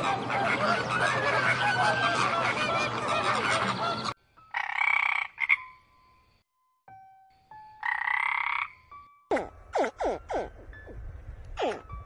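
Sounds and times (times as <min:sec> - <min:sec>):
flamingo flock honking: 0:00.0 - 0:05.6
tree frog croaking: 0:04.5 - 0:05.8, 0:07.8 - 0:10.5.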